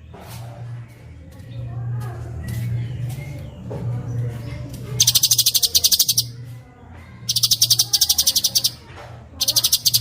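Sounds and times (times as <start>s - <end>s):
songbird rattling trill: 5.0s - 6.4s, 7.3s - 8.8s, 9.4s - 10.0s.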